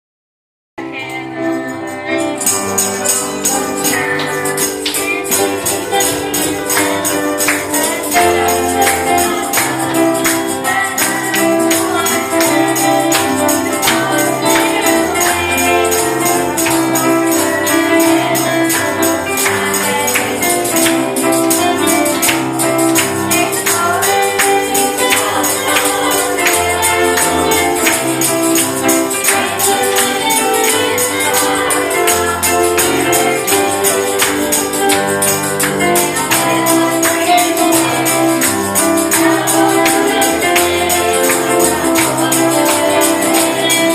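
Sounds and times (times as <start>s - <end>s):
gospel band playing: 0.8s - 43.9s
tambourine shaken: 1.0s - 43.9s
voices singing: 3.0s - 43.9s.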